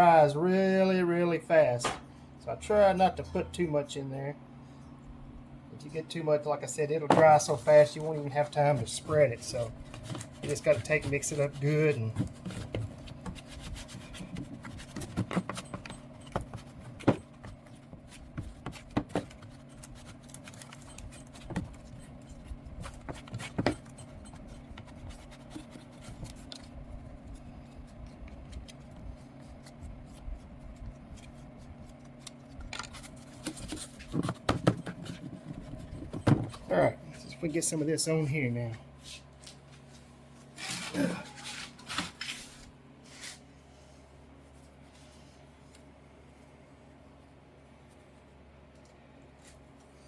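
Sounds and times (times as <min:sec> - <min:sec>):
steady low hum: 0:00.0 - 0:50.0
spreader scraping paste: 0:07.2 - 0:15.9.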